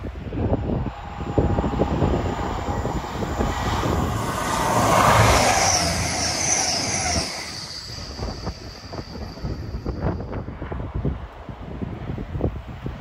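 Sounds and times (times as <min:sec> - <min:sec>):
falling whine of passing train: 0:00.0 - 0:13.0
passenger train passing at speed: 0:00.0 - 0:13.0.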